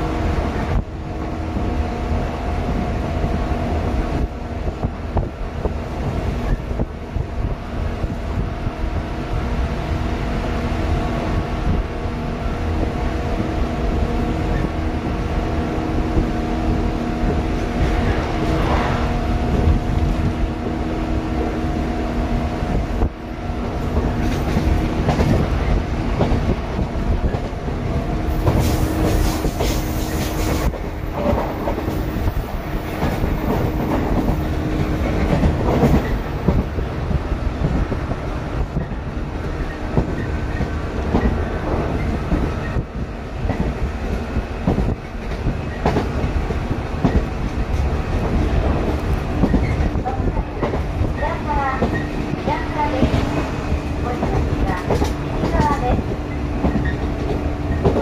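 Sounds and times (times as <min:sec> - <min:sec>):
clickety-clack over rail joints: 0:00.0 - 0:08.5, 0:09.6 - 0:58.0
train wheels rumbling on rail: 0:00.0 - 0:58.0
air rushing through windows: 0:16.0 - 0:21.2.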